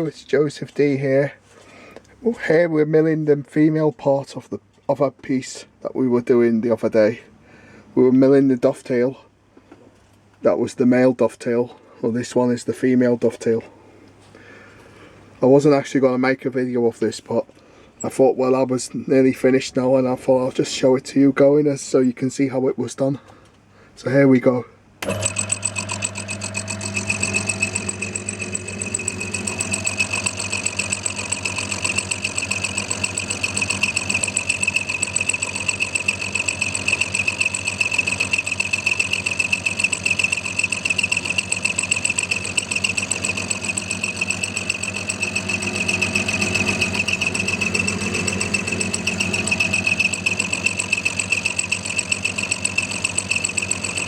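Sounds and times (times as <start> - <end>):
cutter whine: 25.0 - 54.0
low motor hum: 25.0 - 54.0.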